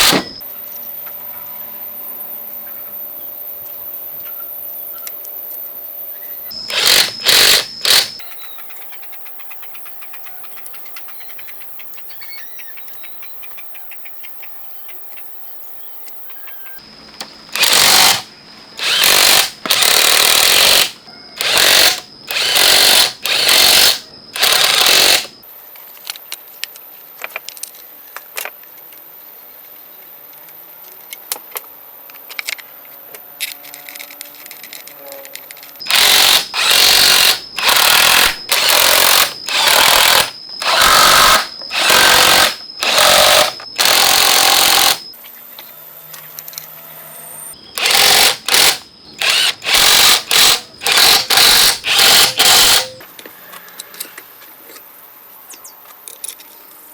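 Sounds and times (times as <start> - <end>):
power tool whining in bursts: 0.0 - 0.4, 6.5 - 8.4, 17.5 - 25.4, 35.8 - 45.1, 47.7 - 53.0.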